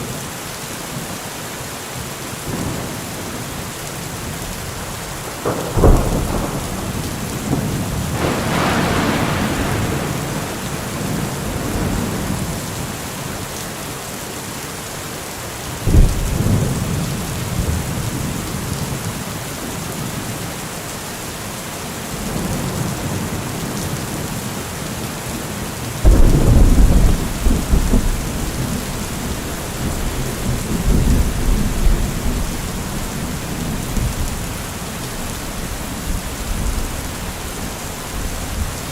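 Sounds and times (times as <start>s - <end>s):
steady rain: 0.0s - 38.9s
thunder claps and rumbles: 2.4s - 13.4s, 15.8s - 19.3s, 26.0s - 38.9s.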